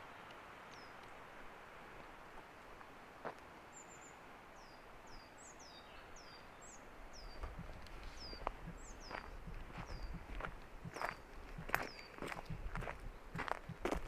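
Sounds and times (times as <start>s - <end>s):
footsteps on trail: 2.0s - 3.5s, 7.2s - 14.0s
small bird calling: 3.7s - 13.8s.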